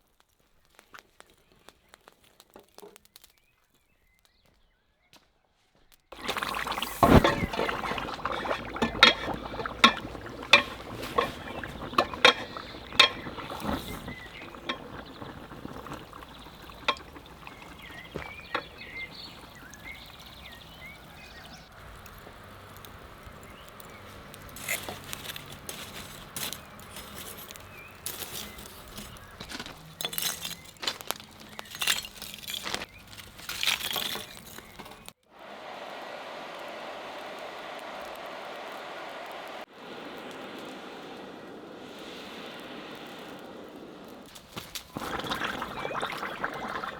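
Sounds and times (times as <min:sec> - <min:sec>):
liquid being poured: 0:06.1 - 0:35.0, 0:44.2 - 0:46.9.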